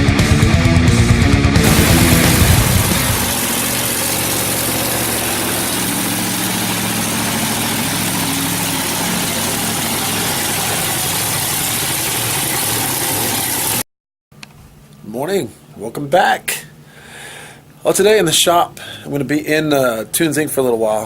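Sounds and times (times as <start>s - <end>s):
broad even hiss: 1.6s - 10.8s
engine idling: 1.6s - 13.8s.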